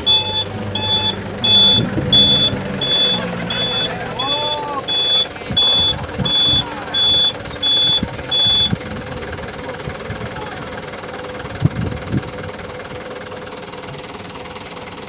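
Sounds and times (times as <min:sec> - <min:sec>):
short low thumps: 0:00.0 - 0:09.2
truck engine idling: 0:00.0 - 0:15.0.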